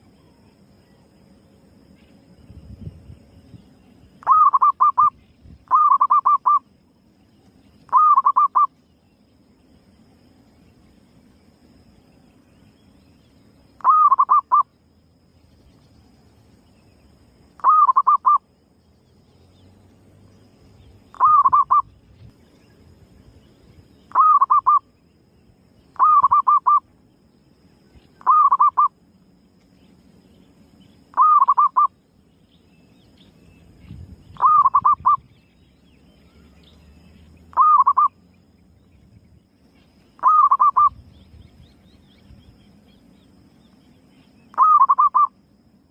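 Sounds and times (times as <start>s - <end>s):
dove cooing: 4.2s - 5.1s, 5.7s - 6.6s, 7.9s - 8.7s, 13.8s - 14.6s, 17.6s - 18.4s, 21.1s - 21.9s, 24.1s - 24.8s, 26.0s - 26.8s, 28.2s - 28.9s, 31.1s - 31.9s, 34.4s - 35.2s, 37.5s - 38.1s, 40.2s - 41.0s, 44.5s - 45.3s.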